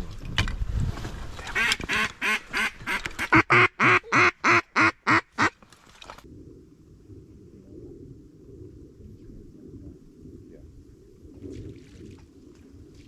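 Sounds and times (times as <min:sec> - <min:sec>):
duck call quacking: 0:01.6 - 0:05.5.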